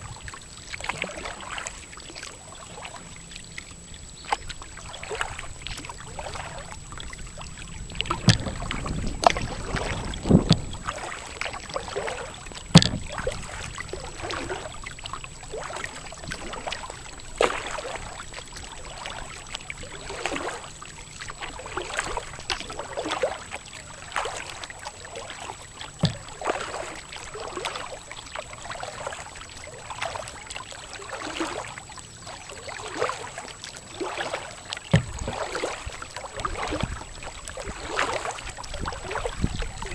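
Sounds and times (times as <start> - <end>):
paddle splashing in water: 0.0 - 39.9
sharp knocks: 8.2 - 8.7, 12.7 - 13.2, 26.0 - 26.3.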